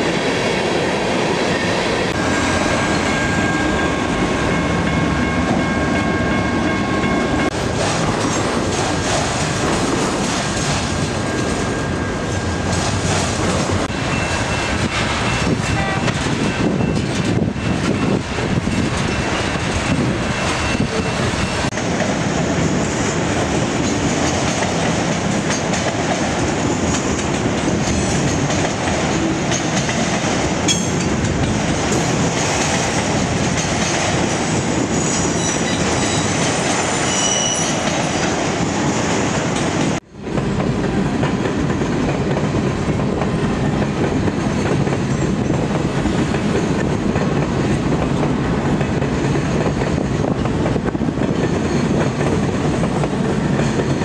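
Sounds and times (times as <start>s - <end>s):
train wheels rumbling on rails: 0.0s - 54.0s
brief high wheel squeals: 37.0s - 37.8s.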